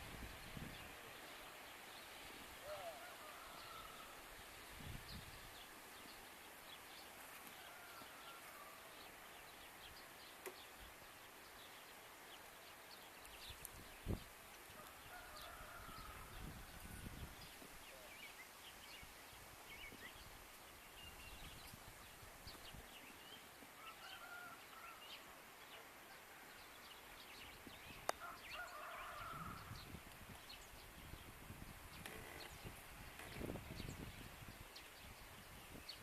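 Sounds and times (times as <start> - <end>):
wind rumble on microphone: 0.0 - 1.0, 4.7 - 5.6, 13.4 - 14.3, 15.1 - 17.8, 27.5 - 36.0
small birds chirping: 8.9 - 23.8.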